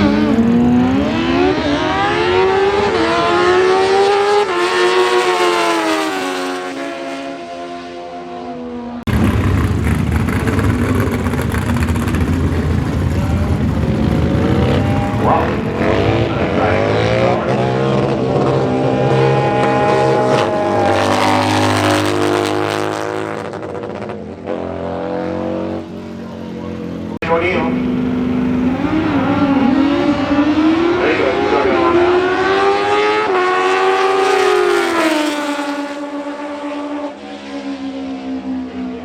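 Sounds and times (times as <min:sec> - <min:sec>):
motorcycle engines revving: 0:00.0 - 0:08.4, 0:09.1 - 0:39.0.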